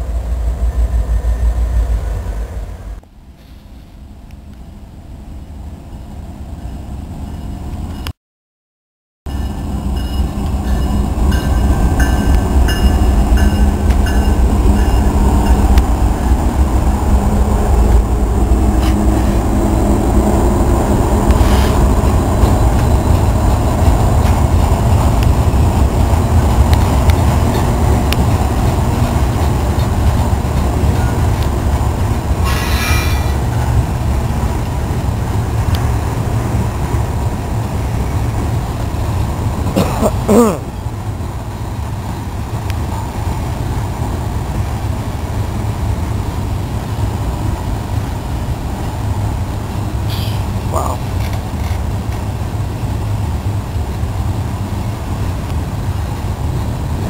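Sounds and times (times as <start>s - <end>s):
diesel locomotives rumbling: 0.0s - 8.1s, 9.3s - 57.0s
freight train rolling past: 0.0s - 8.1s, 9.3s - 57.0s
tank cars rolling on rails: 50.0s - 52.7s.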